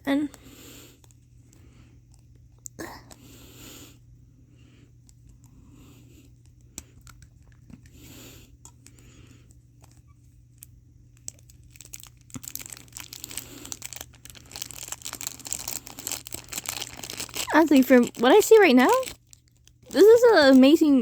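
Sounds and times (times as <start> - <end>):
plastic wrapper crinkling: 9.8 - 21.0.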